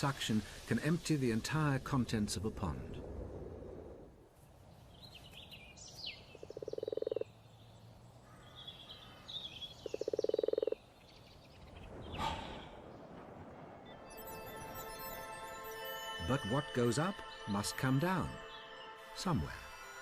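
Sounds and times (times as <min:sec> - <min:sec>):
frogs croaking trills: 0:06.3 - 0:07.4, 0:08.2 - 0:11.0.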